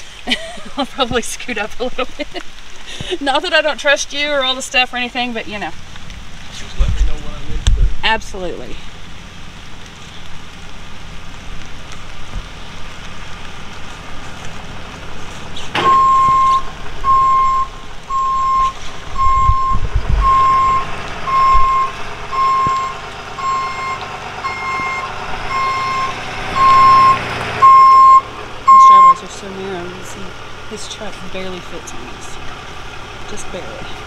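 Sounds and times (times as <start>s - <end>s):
rain hiss: 0.0s - 34.0s
engine running: 4.2s - 34.0s
truck backup alarm beeping: 15.8s - 29.3s.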